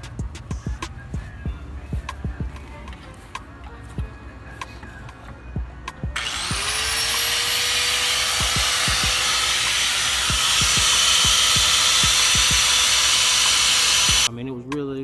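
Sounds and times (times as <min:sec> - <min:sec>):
music with kick-drum beat: 0:00.0 - 0:02.8, 0:04.0 - 0:04.2, 0:05.6 - 0:06.7, 0:08.4 - 0:09.2, 0:10.3 - 0:12.9
power tool whining and hissing: 0:06.2 - 0:14.3.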